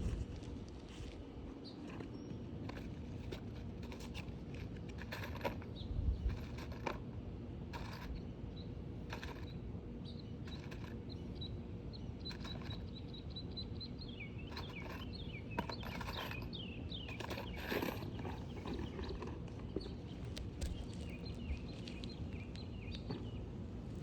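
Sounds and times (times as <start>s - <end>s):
shingle scraping and rustling: 0.0s - 7.1s, 14.4s - 23.4s
songbird singing: 1.5s - 2.8s, 8.2s - 24.0s.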